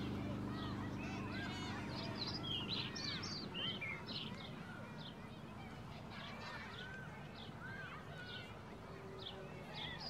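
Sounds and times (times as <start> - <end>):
low background rumble: 0.0 - 4.8
small birds chirping: 0.0 - 10.0.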